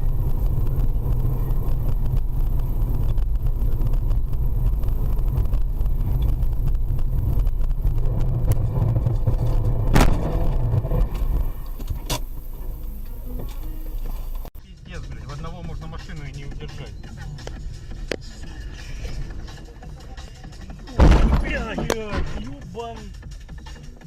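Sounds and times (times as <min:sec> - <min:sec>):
car driving road noise: 0:00.0 - 0:23.0
sharp knock: 0:21.0 - 0:22.5.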